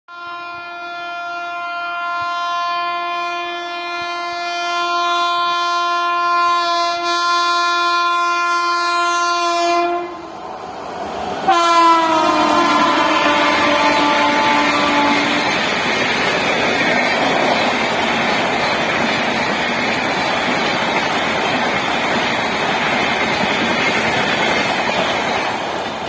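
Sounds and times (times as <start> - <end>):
train horn blast: 0.1 - 10.4, 11.5 - 15.9
train rushing past: 7.1 - 26.0.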